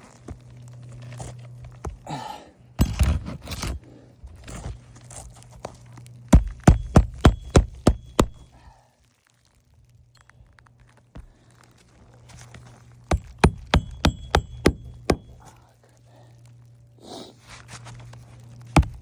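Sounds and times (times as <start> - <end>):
scraping on shingle roof: 2.8 - 8.5, 17.4 - 19.0
hammer blows: 6.4 - 8.5, 13.1 - 15.4.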